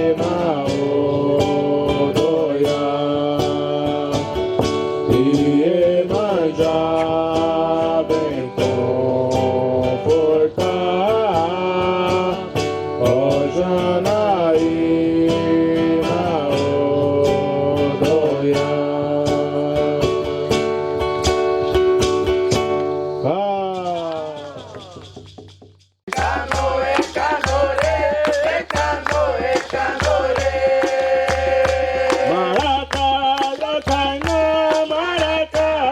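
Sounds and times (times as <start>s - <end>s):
acoustic guitar strumming: 0.0s - 25.2s, 26.1s - 35.9s
person singing: 26.1s - 35.9s.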